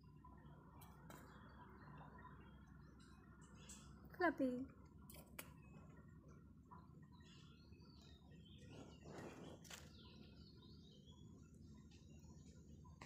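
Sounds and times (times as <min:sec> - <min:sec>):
faint bird chirps: 0:05.5 - 0:13.0.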